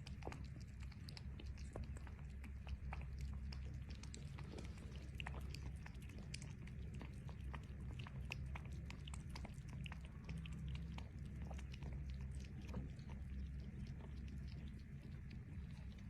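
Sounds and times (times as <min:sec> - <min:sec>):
animal chewing food: 0:00.0 - 0:16.0.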